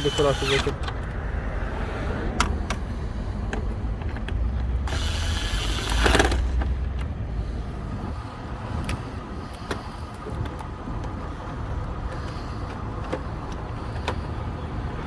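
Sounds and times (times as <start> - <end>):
screwdriver driving screws: 0.0 - 0.8, 4.9 - 6.5
sharp clicks: 3.6 - 7.2.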